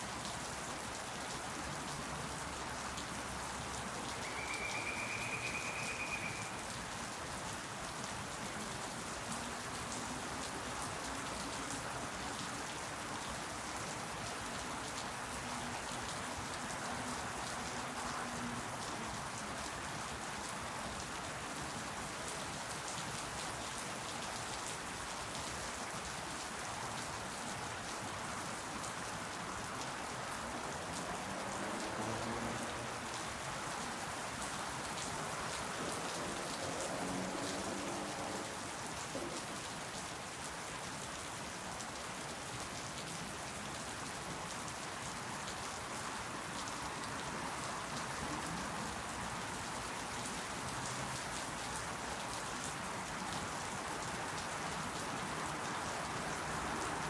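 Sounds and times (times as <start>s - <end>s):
steady rain falling: 0.0s - 57.0s
high whistle-like tone: 4.2s - 6.5s.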